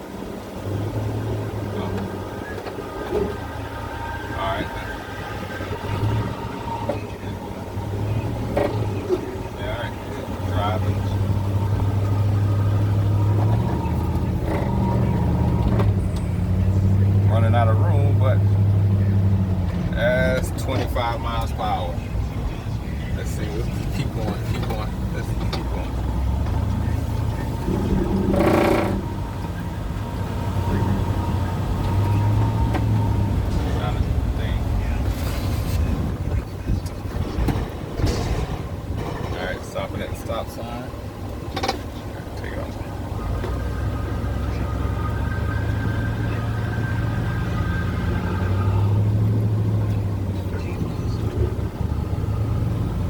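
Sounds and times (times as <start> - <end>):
car engine and road drone: 0.0 - 53.0.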